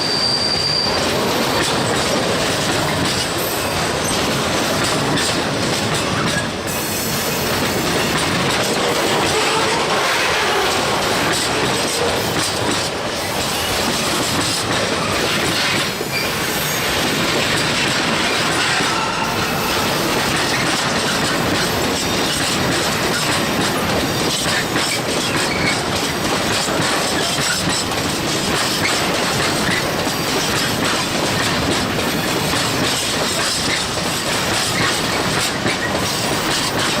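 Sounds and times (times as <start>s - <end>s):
faint short squeal: 0.0s - 1.1s
train rumbling: 0.0s - 37.0s
wheels clattering on rails: 0.9s - 37.0s.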